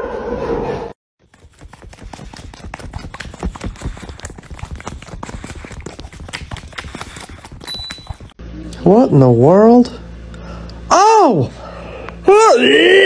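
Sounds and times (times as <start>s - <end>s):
dog licking wet clicks: 1.6s - 8.4s.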